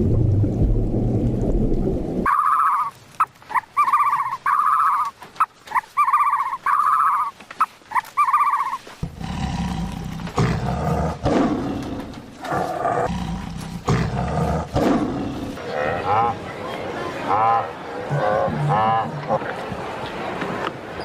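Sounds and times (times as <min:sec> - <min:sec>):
large animal growling roars: 0:09.0 - 0:16.4.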